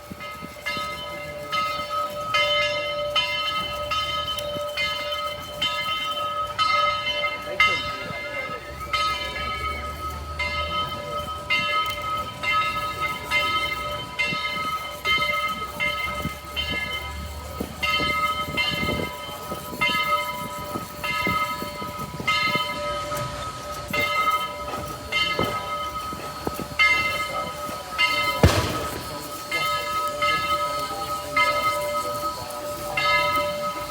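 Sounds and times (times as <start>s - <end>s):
crossing bell ringing: 0.0s - 33.9s
passing train rumble: 14.8s - 33.9s.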